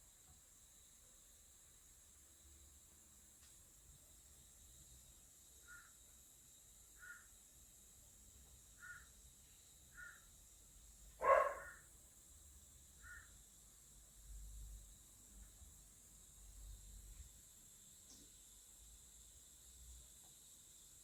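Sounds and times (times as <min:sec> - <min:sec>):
faint animal chirps: 0:11.2 - 0:11.8
harsh animal call: 0:11.2 - 0:11.8.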